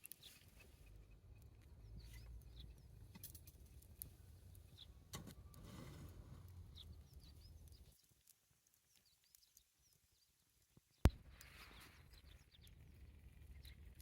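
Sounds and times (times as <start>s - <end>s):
bird chirping: 0.0s - 5.7s, 6.4s - 14.0s.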